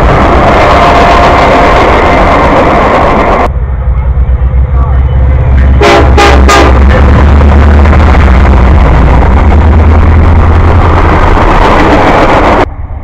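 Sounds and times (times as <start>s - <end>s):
diesel locomotive rumble: 0.0s - 13.0s
train rushing by: 0.0s - 13.0s
train horn blasts: 5.8s - 7.0s.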